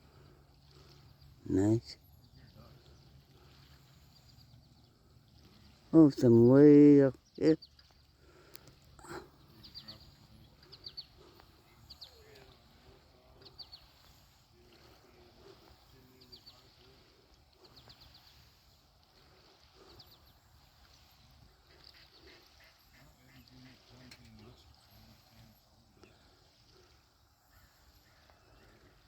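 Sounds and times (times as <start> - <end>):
faint bird chirps: 7.1 - 29.0
low background murmur: 8.2 - 29.0.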